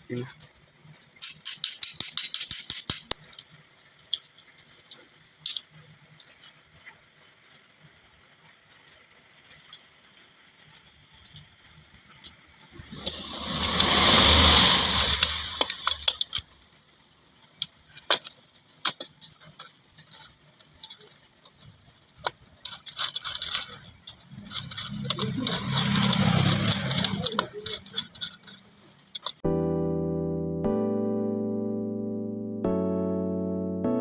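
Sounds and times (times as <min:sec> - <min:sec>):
tools and metal parts clicking: 0:00.5 - 0:03.5, 0:04.2 - 0:06.6, 0:18.0 - 0:29.4
loud rushing noise with hum: 0:12.8 - 0:16.2, 0:24.7 - 0:27.4.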